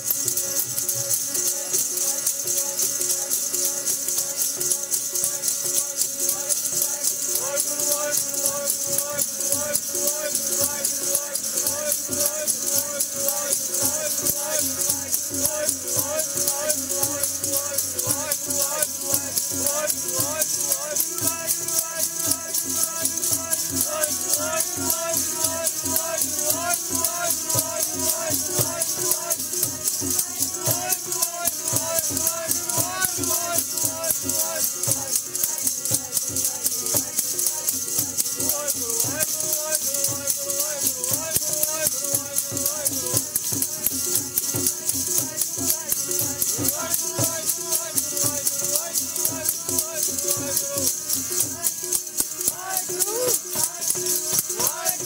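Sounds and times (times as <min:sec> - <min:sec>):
jingling percussion: 0:00.0 - 0:55.0
person singing devotional melody: 0:00.0 - 0:55.0.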